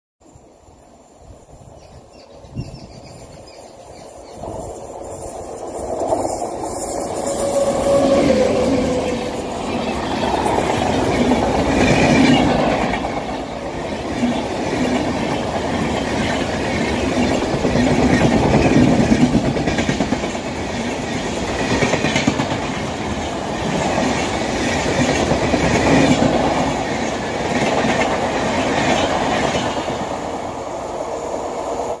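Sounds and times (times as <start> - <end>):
train wheels clattering over rails: 3.9 - 30.5.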